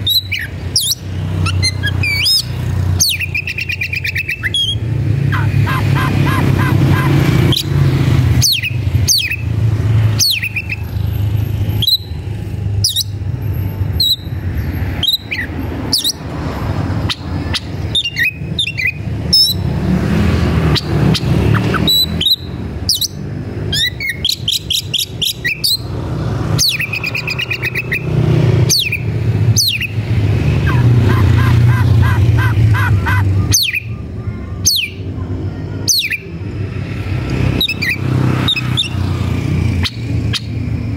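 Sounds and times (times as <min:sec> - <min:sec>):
bird singing whistles: 0:01.6 - 0:04.8, 0:11.8 - 0:12.1.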